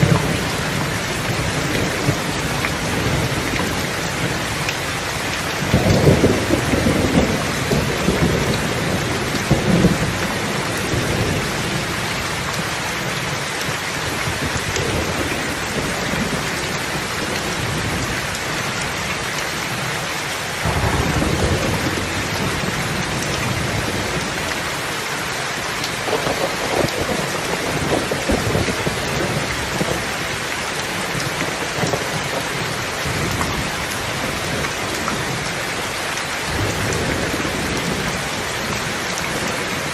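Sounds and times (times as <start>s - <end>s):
steady rain: 0.0s - 39.9s
thunder rolling: 5.6s - 11.8s, 20.6s - 24.4s, 26.0s - 30.3s.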